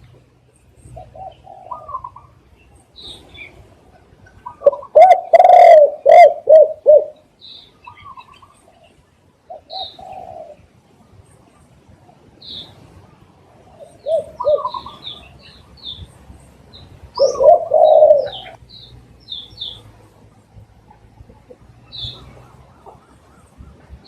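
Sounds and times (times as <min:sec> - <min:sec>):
small birds chirping: 0:00.0 - 0:24.0
dove cooing: 0:00.8 - 0:02.4, 0:03.0 - 0:07.2, 0:07.8 - 0:10.7, 0:13.6 - 0:15.4, 0:17.1 - 0:18.6.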